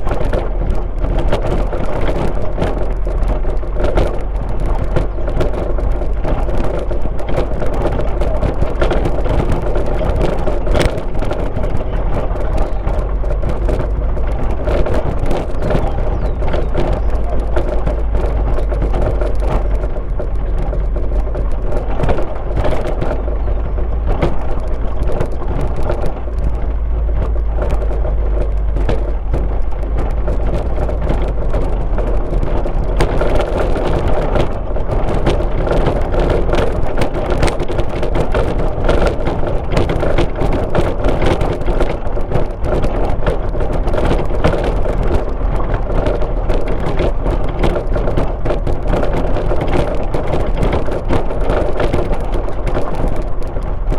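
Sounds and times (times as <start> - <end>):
car engine and tyre noise: 0.0 - 53.9
small clicks and rattles: 0.0 - 53.9.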